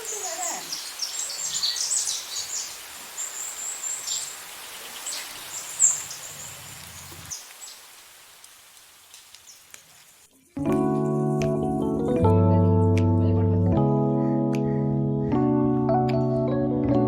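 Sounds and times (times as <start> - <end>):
small birds chirping: 0.0 - 8.0, 9.1 - 9.8.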